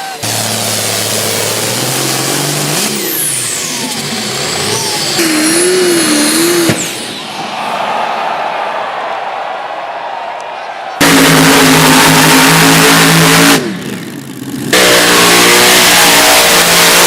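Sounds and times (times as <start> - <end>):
pulling engines running hard: 0.0 - 7.6, 11.0 - 17.0.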